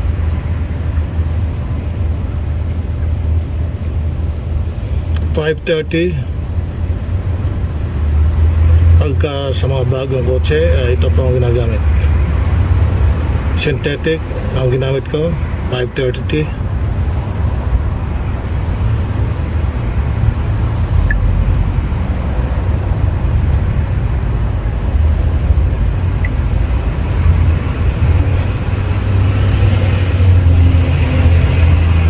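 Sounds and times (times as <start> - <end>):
outdoor low rumble: 0.0 - 32.0.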